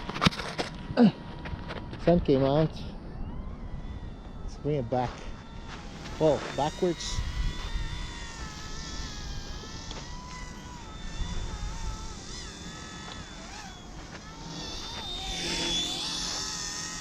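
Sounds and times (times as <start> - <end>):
wind rumble on microphone: 0.0 - 13.5
toy helicopter motor whining: 2.2 - 17.0.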